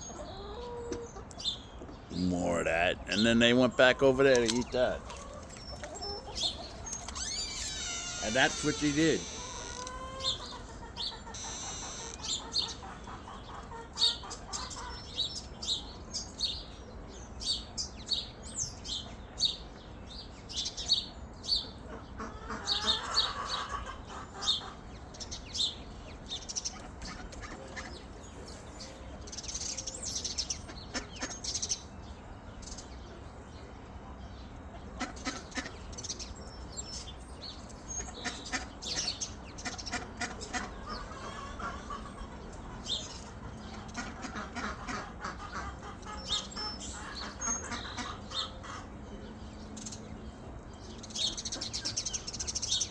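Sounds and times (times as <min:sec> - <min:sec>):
chickens clucking: 0:00.0 - 0:18.4, 0:20.4 - 0:52.9
loud chicken call: 0:06.1 - 0:15.0, 0:22.2 - 0:24.8.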